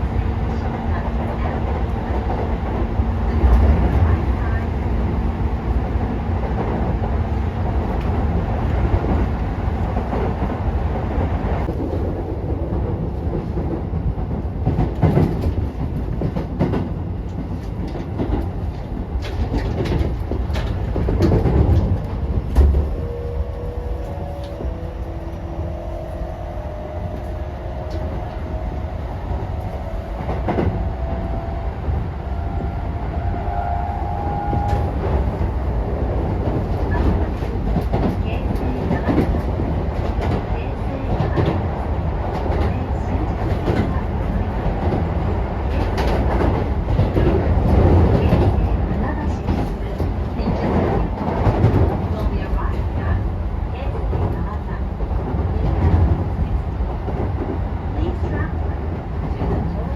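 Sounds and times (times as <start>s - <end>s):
train interior rumble: 0.0s - 59.9s.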